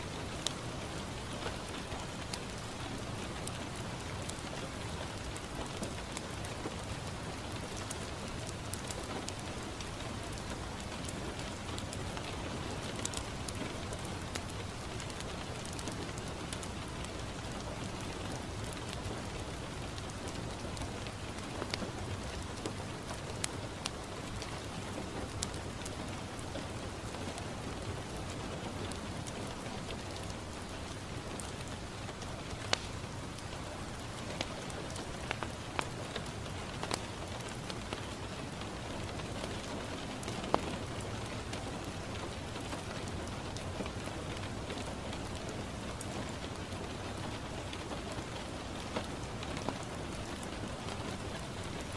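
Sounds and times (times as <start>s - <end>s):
rain on a window: 0.0s - 51.9s
wood fire crackling: 0.1s - 51.9s.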